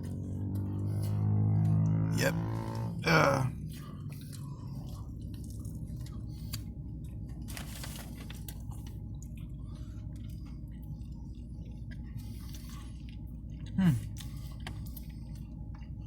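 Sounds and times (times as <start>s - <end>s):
person chewing food: 0.0s - 1.8s, 3.6s - 16.0s
low hum: 0.0s - 16.0s
paper rustle: 7.5s - 8.6s.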